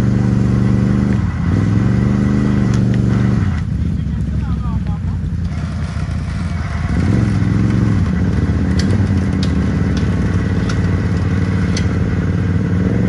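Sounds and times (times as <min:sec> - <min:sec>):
atv engine revving: 0:00.0 - 0:13.0
sharp clicks: 0:07.7 - 0:12.0.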